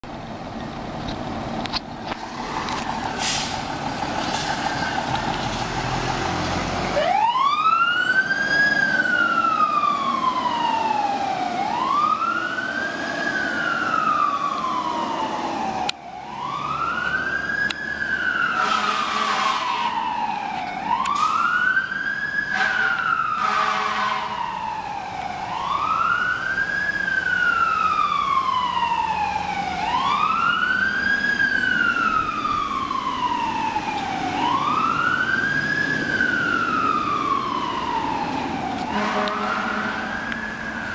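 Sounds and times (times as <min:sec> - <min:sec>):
diesel engine running: 0:00.0 - 0:07.2
siren wailing: 0:06.9 - 0:40.9
horn blasts: 0:18.6 - 0:19.8, 0:22.5 - 0:24.3, 0:38.9 - 0:40.1.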